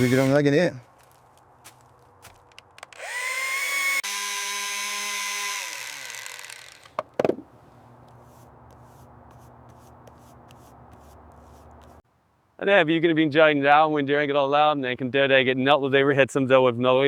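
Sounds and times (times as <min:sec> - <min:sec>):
power tool motor whining: 0:00.0 - 0:00.4, 0:03.0 - 0:07.0.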